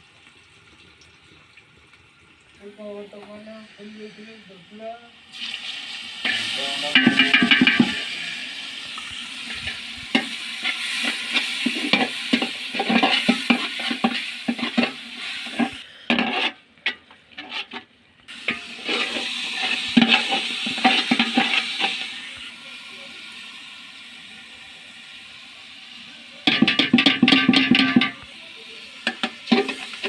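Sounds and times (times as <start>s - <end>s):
spices sizzling in a pan: 2.4s - 16.6s, 18.3s - 30.0s
spoon stirring and scraping pan: 6.2s - 22.4s, 26.4s - 28.3s, 29.0s - 30.0s.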